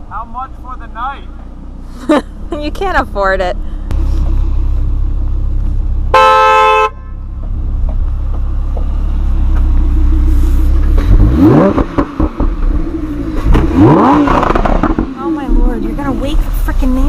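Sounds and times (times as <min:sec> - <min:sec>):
car engine idling: 0:00.0 - 0:17.0
engine revving: 0:00.5 - 0:17.0
car horn: 0:06.1 - 0:07.3.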